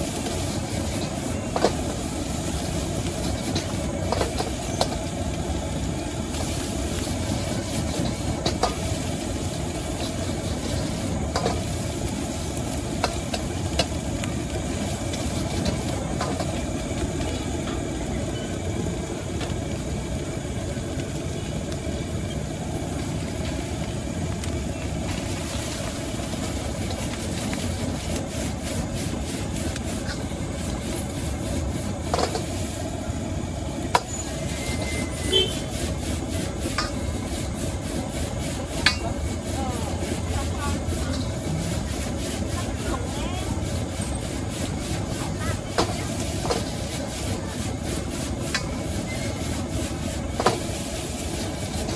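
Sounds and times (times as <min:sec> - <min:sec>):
wok stir-frying roar and sizzle: 0:00.0 - 0:51.9
metal spatula striking wok: 0:38.8 - 0:39.2.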